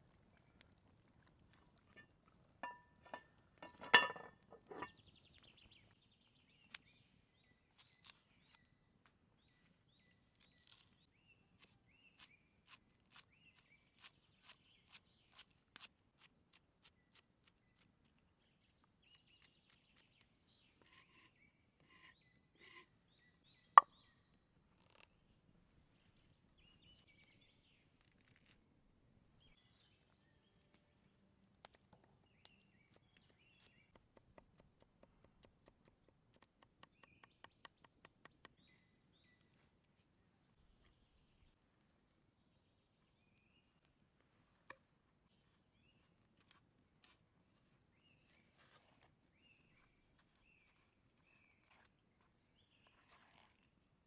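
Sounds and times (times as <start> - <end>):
cookware knocking: 2.6 - 4.9.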